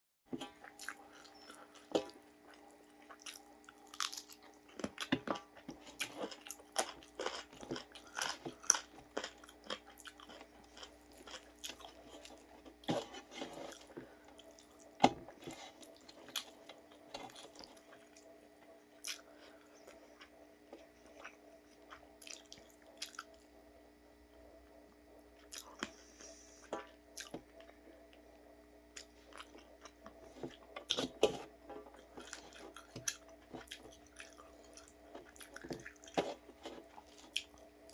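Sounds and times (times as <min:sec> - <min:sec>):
wet chewing: 0:00.4 - 0:18.4, 0:19.0 - 0:23.5, 0:28.9 - 0:37.9
crunchy bites: 0:03.2 - 0:13.9.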